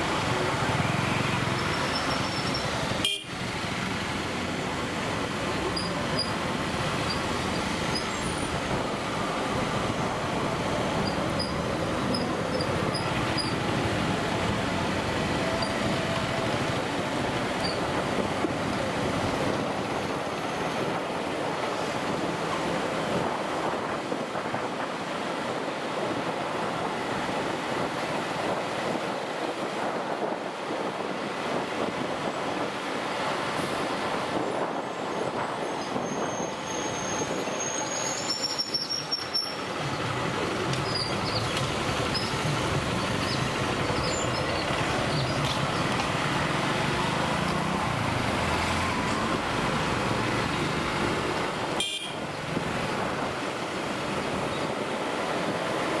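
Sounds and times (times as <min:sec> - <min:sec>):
high squeals: 0:35.7 - 0:39.7.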